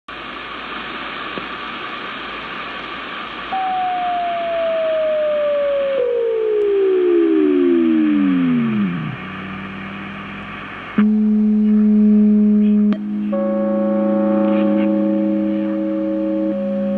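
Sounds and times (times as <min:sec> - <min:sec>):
radio static hiss: 0:00.1 - 0:12.0, 0:14.2 - 0:16.4
heterodyne whistles: 0:03.5 - 0:08.4
low buzzing tone: 0:03.6 - 0:16.9.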